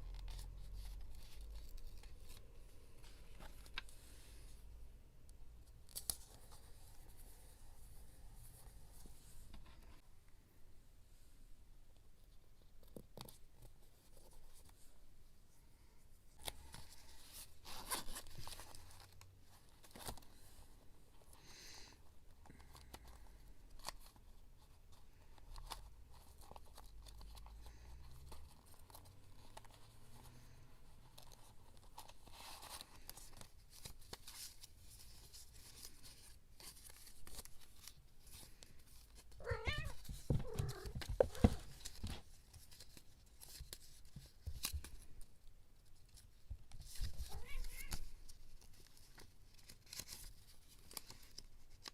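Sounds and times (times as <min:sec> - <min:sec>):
cat meowing: 0:39.4 - 0:41.6, 0:47.2 - 0:48.1
paper rustling and tearing: 0:46.1 - 0:51.9.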